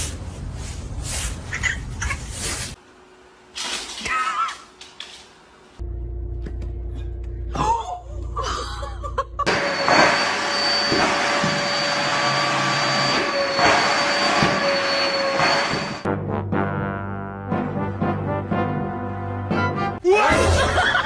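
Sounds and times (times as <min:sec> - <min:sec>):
low hum: 0:05.8 - 0:16.0.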